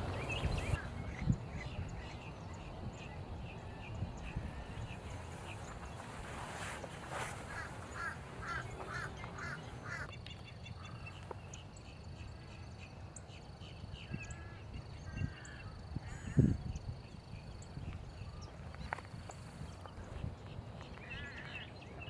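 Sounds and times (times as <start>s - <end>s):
wild birds calling: 0.0s - 2.3s, 7.5s - 12.7s, 18.2s - 22.0s.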